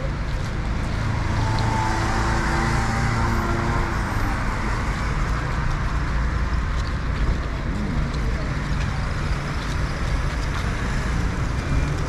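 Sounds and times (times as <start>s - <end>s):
steady road noise: 0.0s - 12.0s
vehicle engine passing by: 0.8s - 4.9s.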